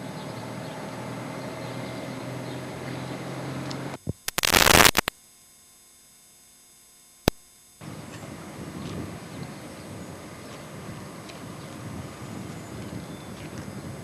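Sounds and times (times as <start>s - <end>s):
vehicle rumbling: 0.0s - 4.0s
burst of static noise: 3.9s - 5.2s, 6.6s - 7.9s.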